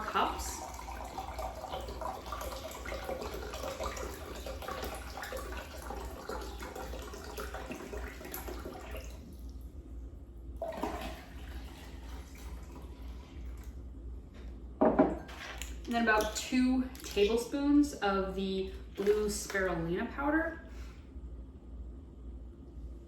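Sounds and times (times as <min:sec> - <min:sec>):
liquid pouring and splashing: 0:00.0 - 0:09.8, 0:10.6 - 0:13.8, 0:15.0 - 0:17.4, 0:18.8 - 0:19.7.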